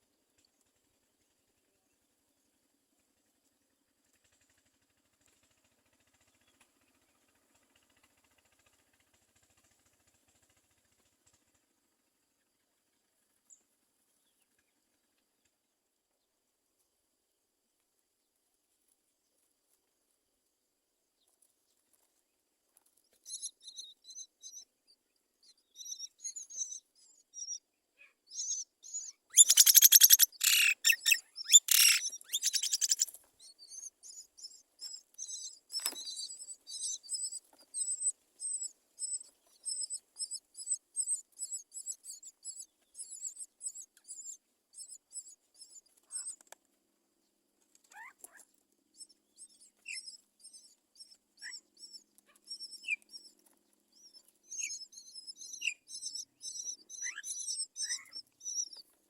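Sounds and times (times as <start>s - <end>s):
nestling birds chirping: 25.8s - 27.6s, 28.3s - 46.4s, 49.0s - 58.8s.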